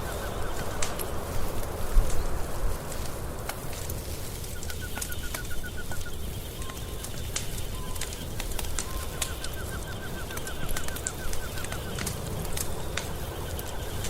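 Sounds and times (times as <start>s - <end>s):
wood fire crackling: 0.0s - 14.0s
rapid chirping notes: 4.5s - 14.0s.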